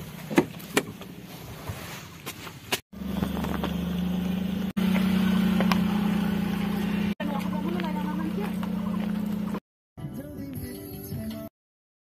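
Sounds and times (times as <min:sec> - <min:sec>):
small car engine running: 0:03.0 - 0:09.6.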